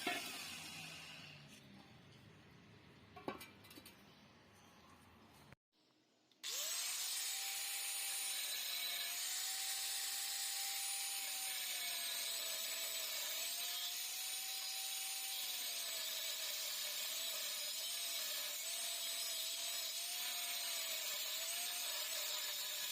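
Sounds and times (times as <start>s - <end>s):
electric power tool whining: 0.0s - 1.4s, 6.4s - 22.9s.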